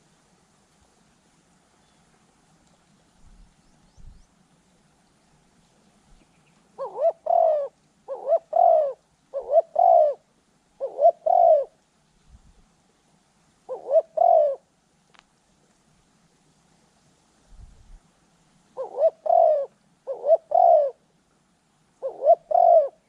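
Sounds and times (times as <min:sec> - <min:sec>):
dove cooing: 0:06.7 - 0:11.8, 0:13.7 - 0:14.7, 0:18.8 - 0:21.1, 0:22.0 - 0:23.0.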